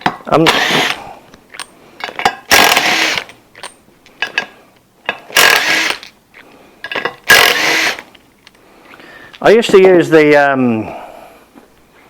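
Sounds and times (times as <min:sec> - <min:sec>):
tool handling clicks and knocks: 0:00.0 - 0:08.6
impact gun bursts: 0:00.4 - 0:01.1, 0:02.5 - 0:03.3, 0:05.3 - 0:06.1, 0:07.2 - 0:08.0.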